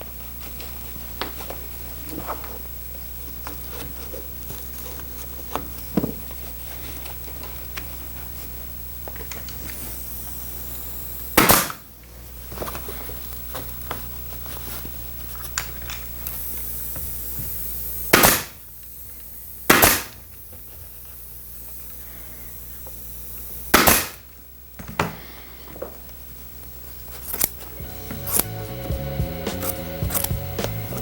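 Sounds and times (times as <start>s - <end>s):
steady low hum: 0.0s - 31.0s
loud sharp burst: 11.4s - 11.8s, 18.1s - 18.6s, 19.7s - 20.2s, 23.7s - 24.2s.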